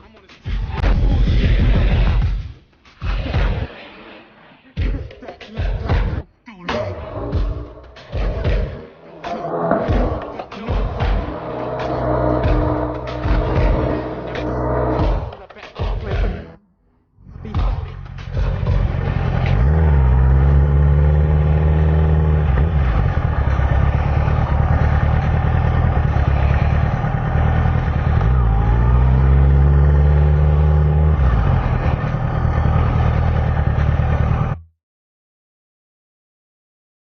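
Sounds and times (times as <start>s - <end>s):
motorcycle engine accelerating: 6.9s - 15.4s, 17.6s - 34.7s.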